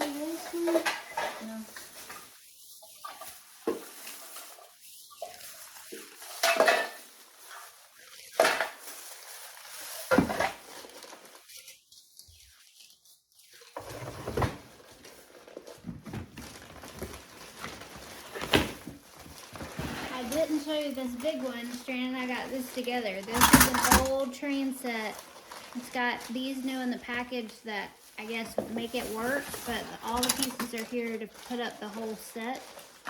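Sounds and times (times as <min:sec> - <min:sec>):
small clatters and rummaging: 0:00.0 - 0:33.0
hard objects clinking and knocking: 0:23.2 - 0:24.2.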